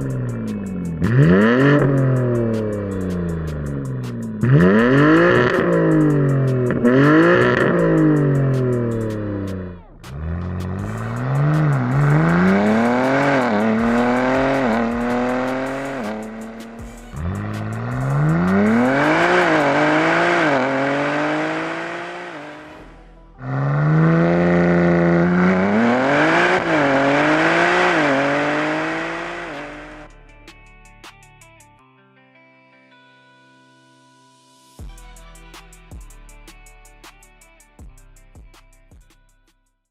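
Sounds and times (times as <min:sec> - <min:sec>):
car engine accelerating hard: 0:00.0 - 0:30.1.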